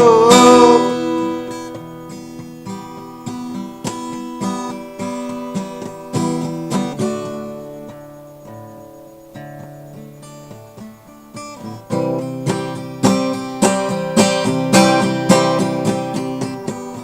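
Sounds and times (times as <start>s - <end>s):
person singing: 0.0s - 1.8s
acoustic guitar chords: 0.0s - 17.0s.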